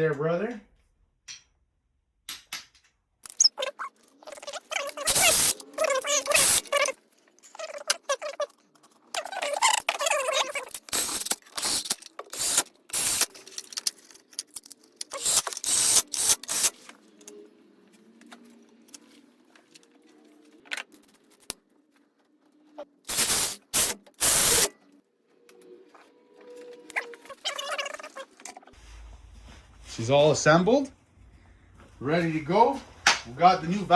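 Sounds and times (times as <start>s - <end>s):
tools and engine parts clanking: 8.8s - 17.4s.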